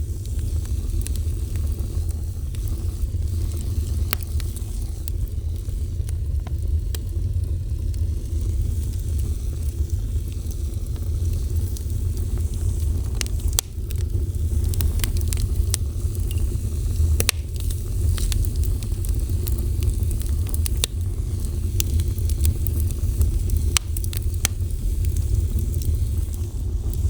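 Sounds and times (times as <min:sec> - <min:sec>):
fire crackling and popping: 0:00.0 - 0:27.0.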